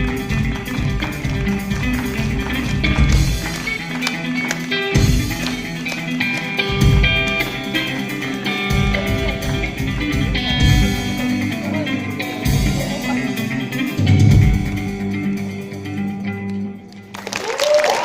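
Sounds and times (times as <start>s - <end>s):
deep bass notes: 8.6s - 15.7s.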